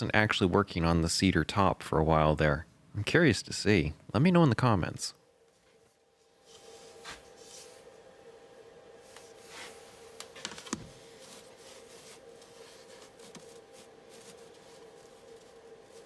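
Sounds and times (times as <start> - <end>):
steady hum: 0.0 - 16.0
handling and rubbing sounds: 5.5 - 8.0, 9.0 - 16.0.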